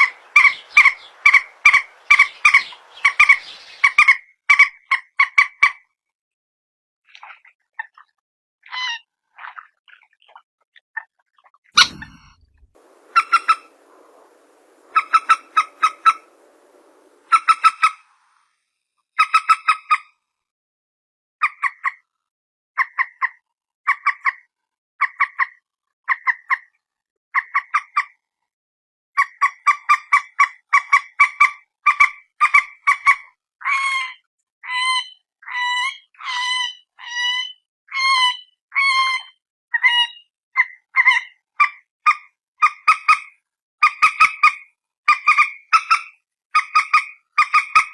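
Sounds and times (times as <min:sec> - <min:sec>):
moorhen clucking calls: 0:00.0 - 0:04.2, 0:11.8 - 0:18.2
sharp knock: 0:11.8 - 0:13.7.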